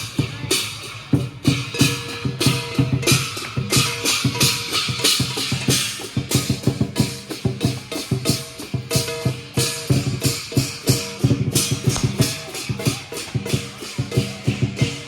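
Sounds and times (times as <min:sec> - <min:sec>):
cymbals crashing: 0:00.0 - 0:15.0
large drum beating fast: 0:11.3 - 0:14.8.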